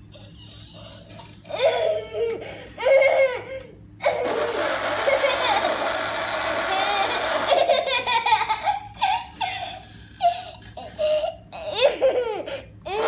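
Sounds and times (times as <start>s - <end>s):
baby laughing and squealing: 1.5s - 6.0s, 6.6s - 10.4s.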